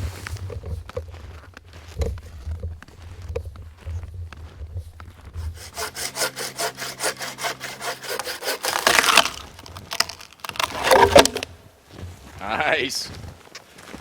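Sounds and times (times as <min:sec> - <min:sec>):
hand saw cutting log: 0:05.4 - 0:11.5.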